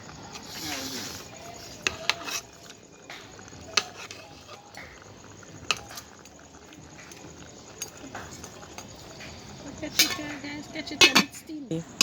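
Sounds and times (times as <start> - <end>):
cookware clinking and knocking: 9.2 - 11.5.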